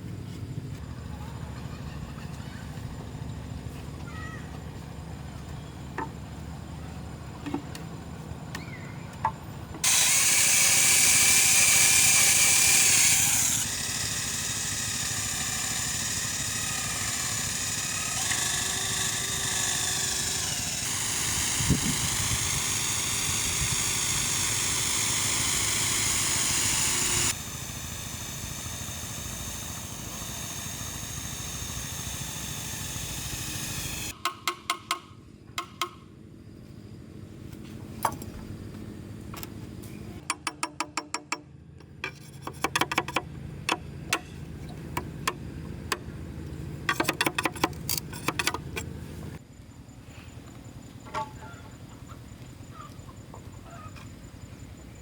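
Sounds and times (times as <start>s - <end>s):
handheld power tool running: 9.8s - 34.2s, 41.8s - 49.4s.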